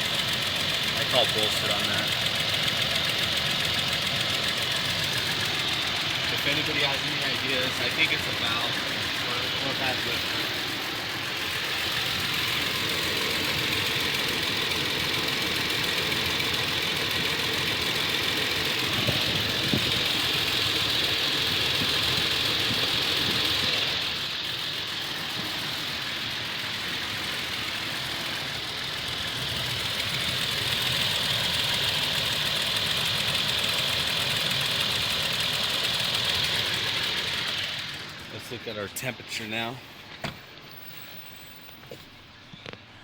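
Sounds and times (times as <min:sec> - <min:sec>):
engine idling with ticking: 0:00.0 - 0:43.0.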